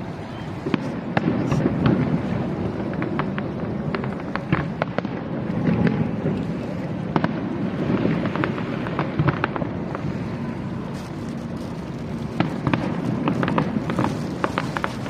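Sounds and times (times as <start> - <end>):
fireworks pops and crackles: 0.0 - 15.0
fireworks rumbling bursts: 0.0 - 15.0.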